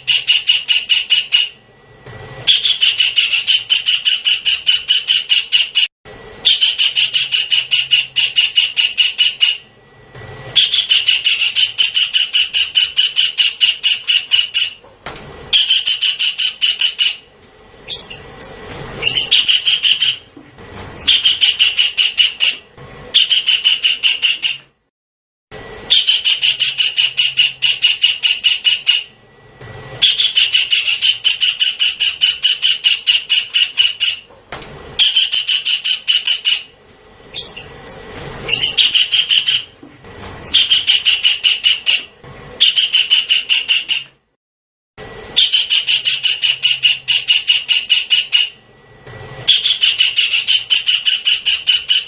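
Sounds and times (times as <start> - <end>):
kingfisher chattering calls: 2.5 - 9.7, 10.6 - 14.8, 15.5 - 17.3, 17.9 - 20.3, 21.0 - 22.6, 23.2 - 24.6, 25.9 - 29.1, 30.0 - 34.3, 35.0 - 36.7, 37.3 - 39.8, 40.4 - 44.1, 45.4 - 48.6, 49.5 - 52.0.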